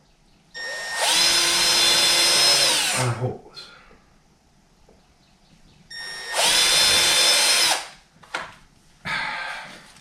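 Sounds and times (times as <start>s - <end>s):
power drill whining: 0.6s - 3.0s, 5.9s - 7.9s.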